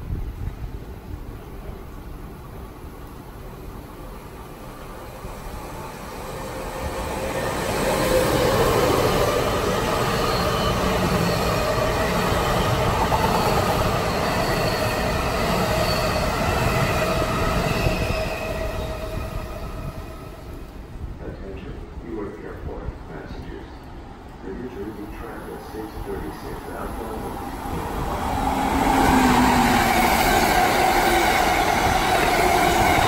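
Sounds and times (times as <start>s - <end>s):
electric train rumbling past: 0.0s - 33.0s.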